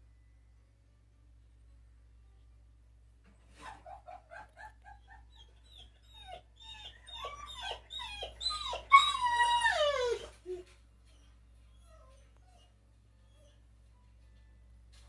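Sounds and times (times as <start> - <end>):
dog yelp: 3.6 - 12.7
dog whining: 3.6 - 13.6.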